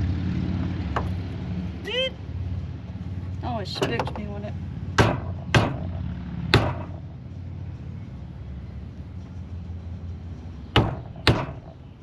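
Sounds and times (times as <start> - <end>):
low engine rumble: 0.0 - 12.0
sharp knocks: 5.0 - 7.0, 10.8 - 11.8.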